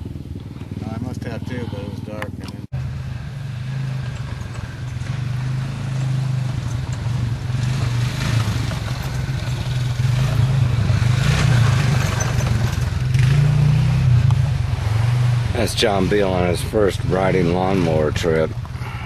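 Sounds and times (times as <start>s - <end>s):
small engine running: 0.0s - 14.1s
rough rushing noise: 0.0s - 19.0s.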